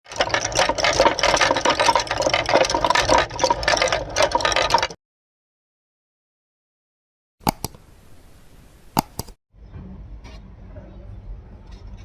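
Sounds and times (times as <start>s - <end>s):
marbles rolling and clattering: 0.0s - 5.0s.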